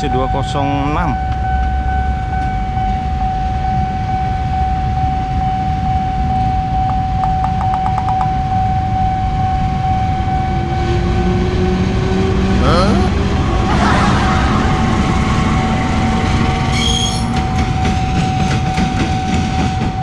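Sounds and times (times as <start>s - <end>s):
steady high tone: 6.2s - 9.1s
rapid clicks: 7.2s - 8.3s
train rumbling past: 8.6s - 20.0s.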